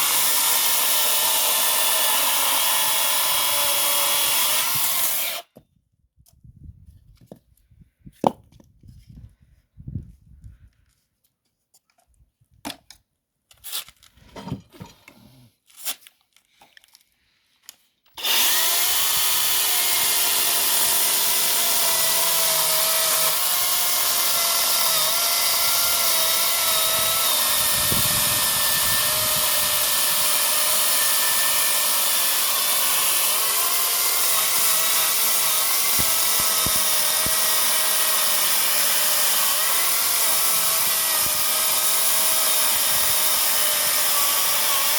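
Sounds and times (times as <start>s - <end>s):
electric chainsaw whining: 0.0s - 5.5s, 18.2s - 44.9s.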